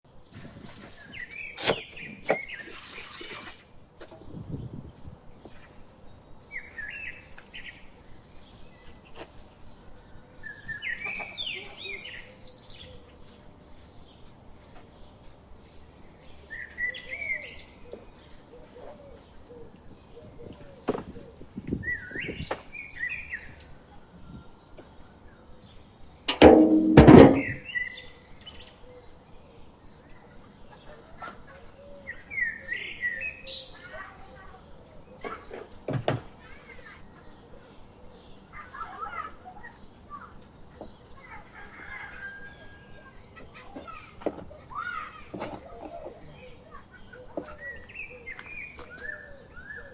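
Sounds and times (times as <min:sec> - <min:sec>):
birds chirping: 0:00.1 - 0:49.9.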